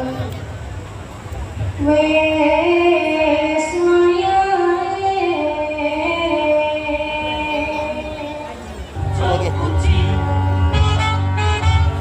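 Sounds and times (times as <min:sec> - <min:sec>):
woman singing long notes: 0:01.8 - 0:11.4
music: 0:03.4 - 0:12.0.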